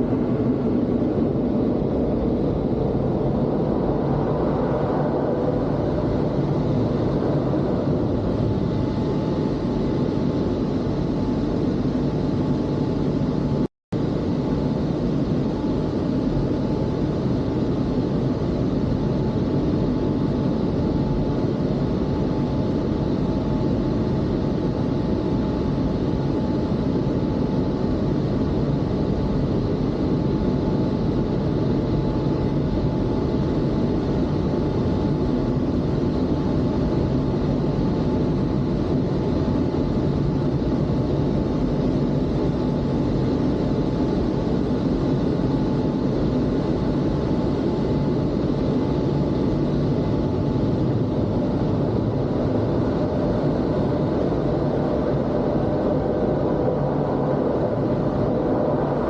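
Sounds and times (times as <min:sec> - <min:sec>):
faint steady whine: 0:00.0 - 0:59.0.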